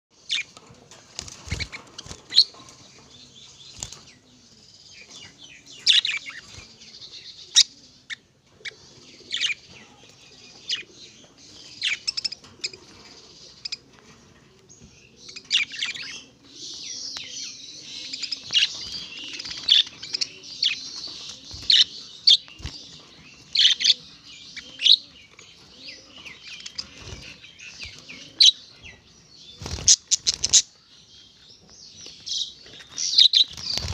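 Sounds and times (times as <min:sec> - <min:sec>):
birds high chirps: 0:00.1 - 0:33.9
wing fluttering: 0:00.6 - 0:02.8, 0:29.6 - 0:30.6, 0:33.4 - 0:33.9.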